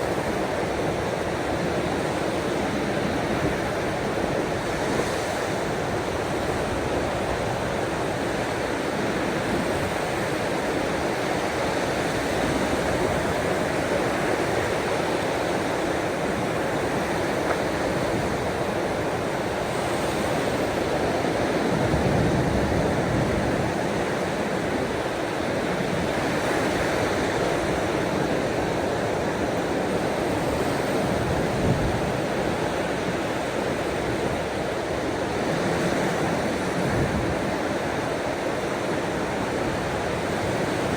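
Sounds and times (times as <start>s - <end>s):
ocean waves washing ashore: 0.0s - 40.9s.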